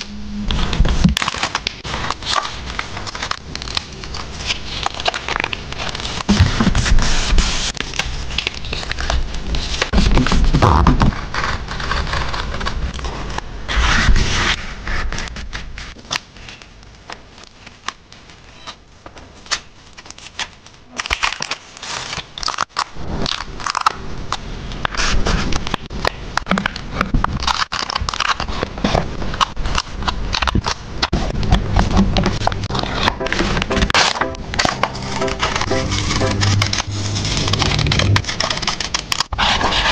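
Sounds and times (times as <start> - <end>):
paper and stickers crinkling: 0.6 - 15.6.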